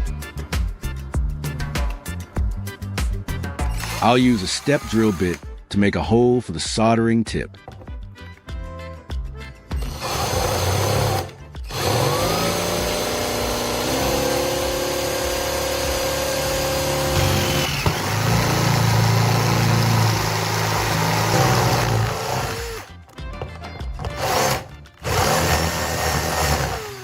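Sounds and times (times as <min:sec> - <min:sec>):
electric drill whining through metal: 0:03.6 - 0:05.4, 0:09.8 - 0:23.0, 0:24.0 - 0:27.0.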